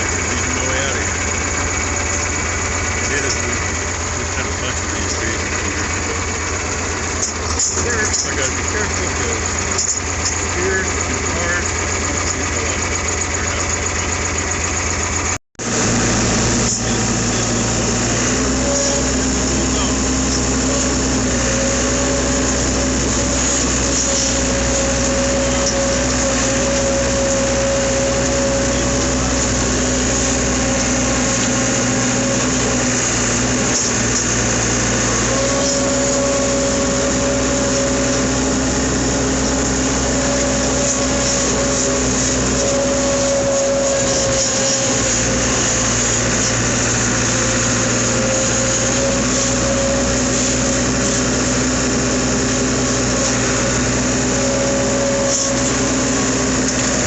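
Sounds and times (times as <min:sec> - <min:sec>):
truck engine and road noise: 0:00.0 - 0:57.0
held tone: 0:15.7 - 0:57.0.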